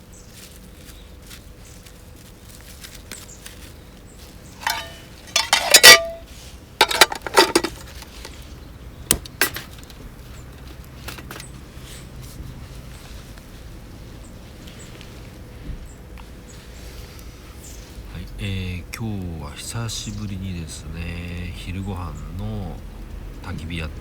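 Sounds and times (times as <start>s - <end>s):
metal camp gear clinking: 4.4s - 8.4s, 9.1s - 10.0s.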